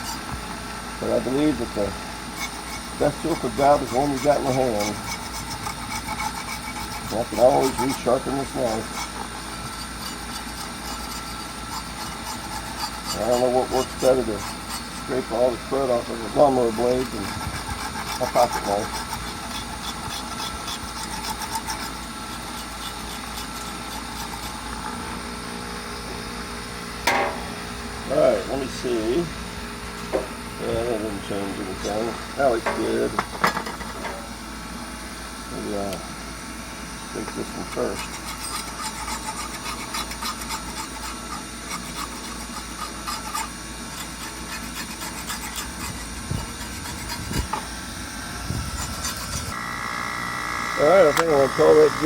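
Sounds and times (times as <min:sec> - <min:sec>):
machine hum: 0:00.0 - 0:40.5, 0:44.7 - 0:52.0
knife scraping metal blade: 0:02.3 - 0:15.2, 0:17.0 - 0:25.0, 0:37.8 - 0:47.7.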